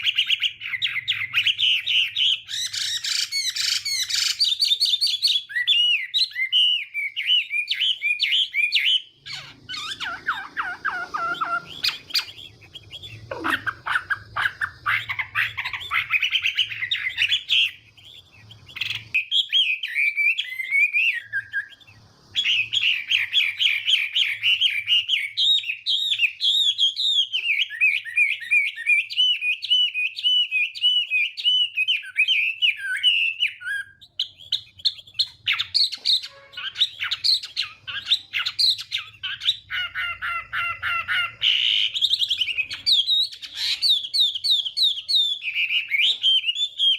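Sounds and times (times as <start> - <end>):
bird singing whistled notes: 0.0 - 46.9.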